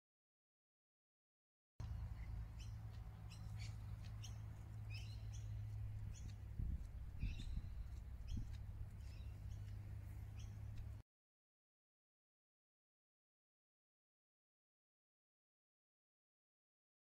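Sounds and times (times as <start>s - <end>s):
small birds chirping: 1.8s - 11.0s
steady low hum: 1.8s - 11.0s.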